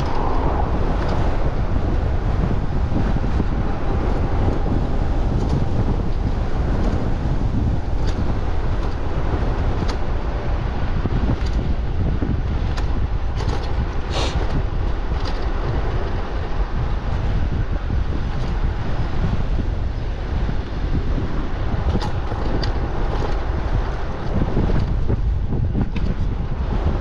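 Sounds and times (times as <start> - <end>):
wind buffeting microphone: 0.0 - 27.0
brief hiss: 14.1 - 14.4.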